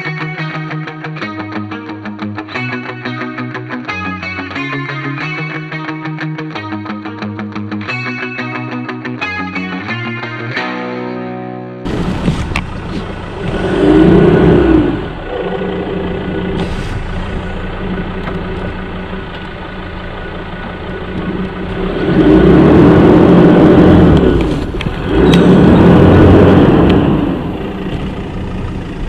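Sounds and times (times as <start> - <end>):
vehicle engine revving: 11.8 - 29.0.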